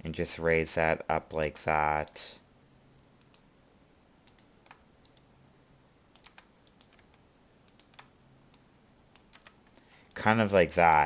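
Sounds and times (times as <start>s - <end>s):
keyboard and mouse clicking: 3.2s - 3.5s, 4.2s - 5.3s, 6.1s - 10.2s.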